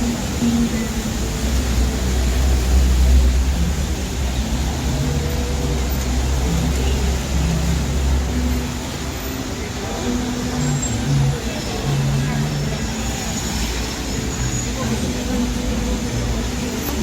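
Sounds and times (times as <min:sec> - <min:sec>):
rain on wet road hiss: 0:00.0 - 0:17.0
vehicle engines rumbling: 0:00.0 - 0:17.0.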